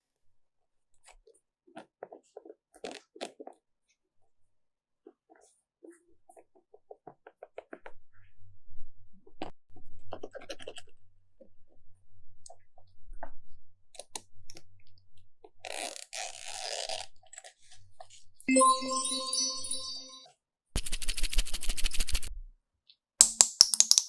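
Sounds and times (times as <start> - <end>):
slime clicking and popping: 23.2 - 24.0.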